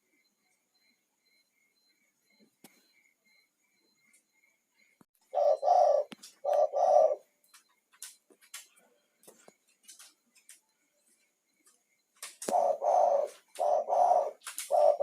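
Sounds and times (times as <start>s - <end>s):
dove cooing: 5.2s - 7.4s, 12.3s - 15.0s.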